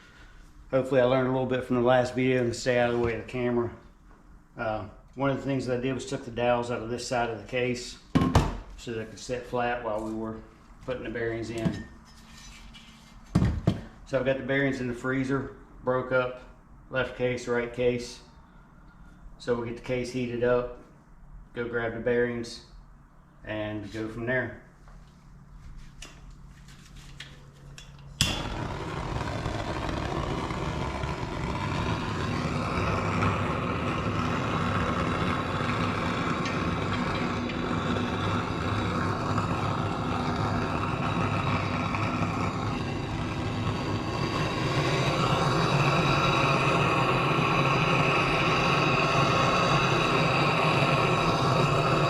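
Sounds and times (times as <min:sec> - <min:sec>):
heat gun blowing rush: 0:28.2 - 0:52.0
heating tool switching on: 0:28.2 - 0:52.0.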